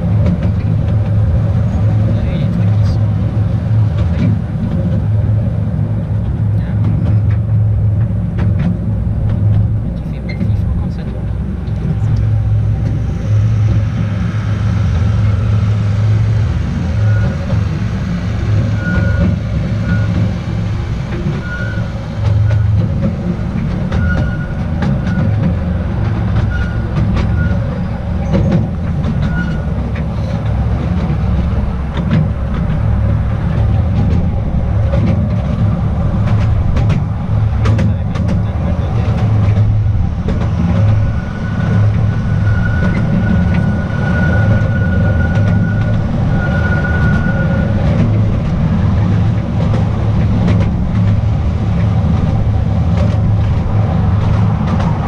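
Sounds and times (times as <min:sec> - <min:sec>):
small train rumbling on track: 0:00.0 - 0:55.0
thin high squeal: 0:21.4 - 0:22.0.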